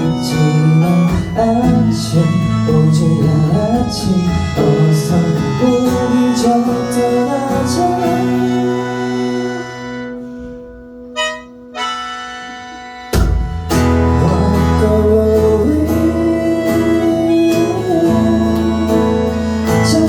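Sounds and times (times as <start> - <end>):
acoustic guitar: 0.0 - 20.0
bass line: 0.0 - 20.0
gliding held melody line: 11.1 - 20.0.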